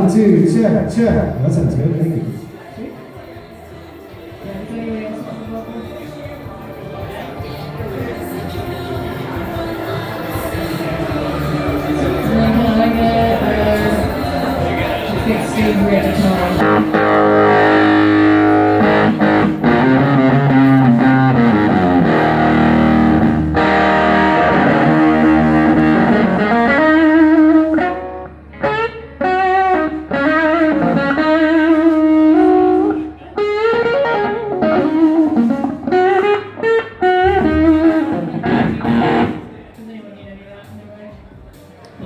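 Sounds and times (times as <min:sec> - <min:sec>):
distorted electric guitar: 0:06.3 - 0:39.7.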